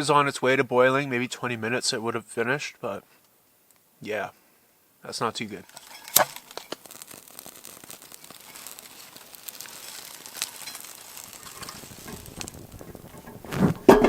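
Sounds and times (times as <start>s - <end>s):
sticks crackling in stove: 5.5s - 14.0s.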